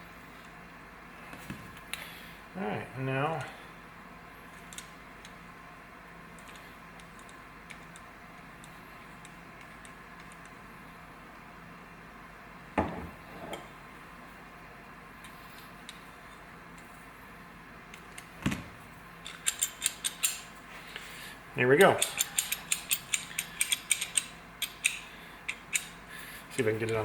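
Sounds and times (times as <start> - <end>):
steady low hum: 0.0 - 27.0
metallic clicks: 19.2 - 20.5, 21.8 - 26.0.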